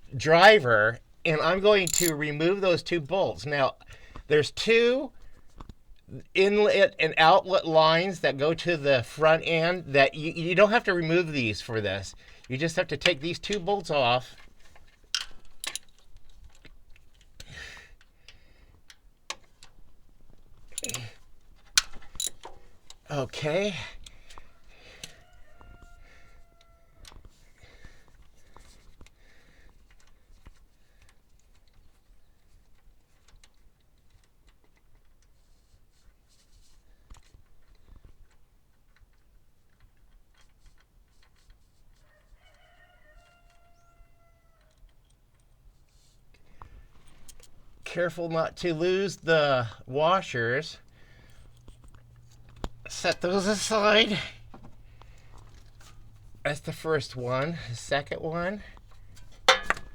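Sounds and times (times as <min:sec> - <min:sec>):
hand tool clinking on metal bolts: 0:01.5 - 0:03.0, 0:15.2 - 0:16.5, 0:20.7 - 0:23.7, 0:51.3 - 0:59.9
rooster crowing: 0:24.6 - 0:27.1, 0:42.0 - 0:44.7.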